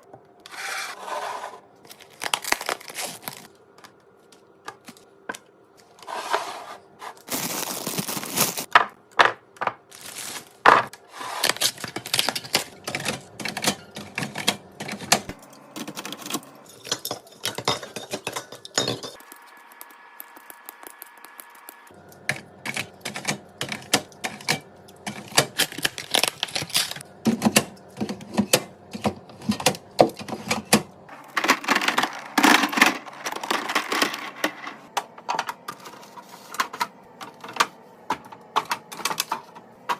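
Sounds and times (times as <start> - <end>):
packaging rustle: 1.9 - 3.5, 7.2 - 8.7, 9.9 - 10.6
food containers clicking and clacking: 10.8 - 19.2, 22.2 - 39.9.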